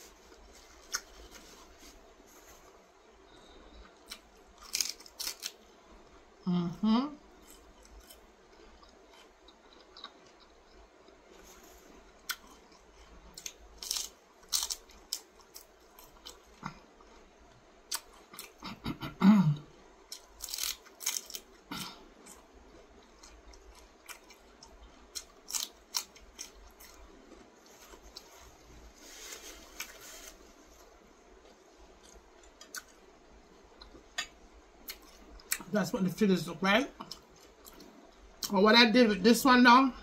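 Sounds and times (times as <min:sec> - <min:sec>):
paper napkin rustling: 0:00.0 - 0:02.8, 0:27.7 - 0:30.9
chewing and crunching lettuce: 0:00.0 - 0:06.3, 0:07.2 - 0:19.0, 0:20.0 - 0:35.7.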